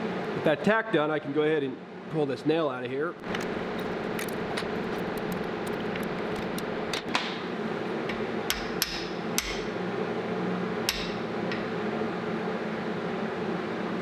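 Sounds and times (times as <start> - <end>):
steady low hum: 3.1 - 12.0
hammer striking steel: 8.1 - 9.7, 10.9 - 11.7.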